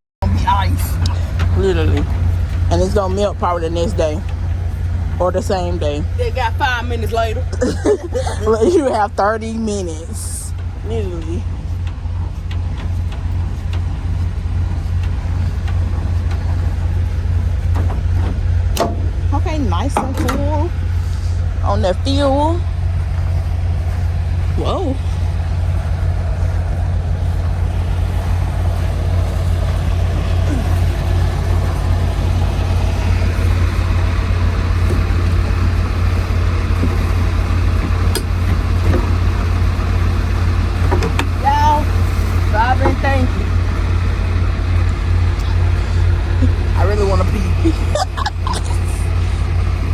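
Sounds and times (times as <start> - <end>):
truck diesel engine droning: 0.2 - 49.9.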